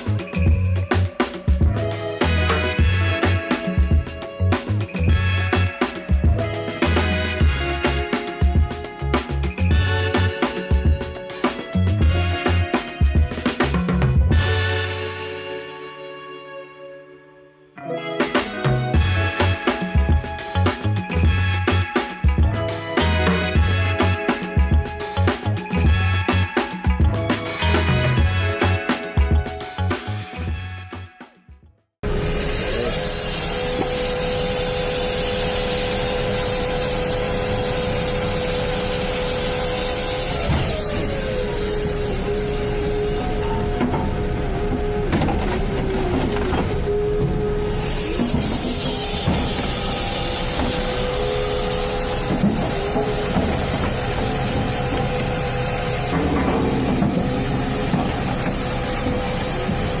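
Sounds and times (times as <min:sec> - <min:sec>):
machine running with high whine: 0:32.0 - 1:00.0.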